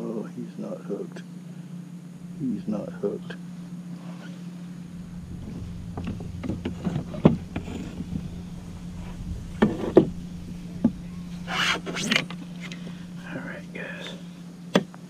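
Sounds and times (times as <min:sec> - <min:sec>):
steady low hum: 0:00.8 - 0:15.0.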